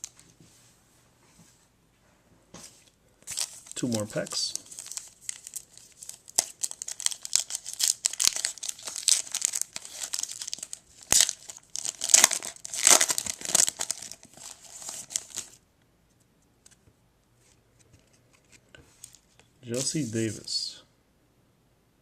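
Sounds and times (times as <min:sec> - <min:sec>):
plastic wrapper crinkling and tearing: 0:03.2 - 0:15.6.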